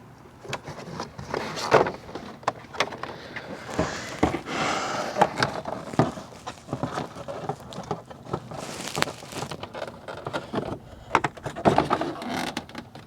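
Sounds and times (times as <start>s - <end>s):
rustle: 0.4s - 10.7s.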